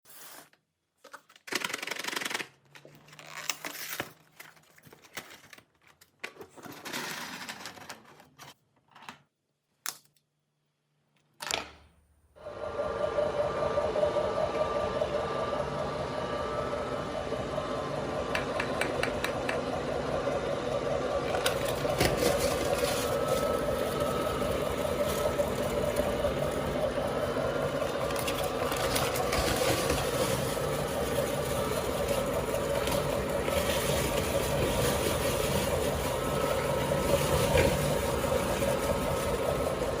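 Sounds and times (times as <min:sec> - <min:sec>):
meat grinder humming: 0:12.4 - 0:40.0
cookies crunching in grinder: 0:21.2 - 0:26.9, 0:27.6 - 0:40.0.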